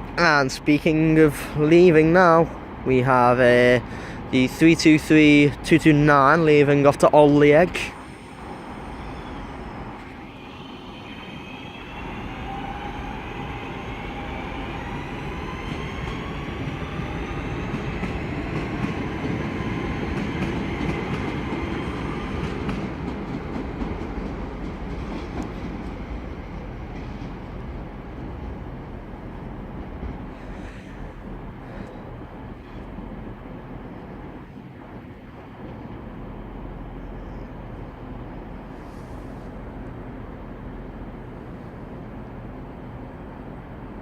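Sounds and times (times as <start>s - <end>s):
wheels rumbling on track: 0.0s - 44.0s
electric train motor whine: 8.0s - 18.2s.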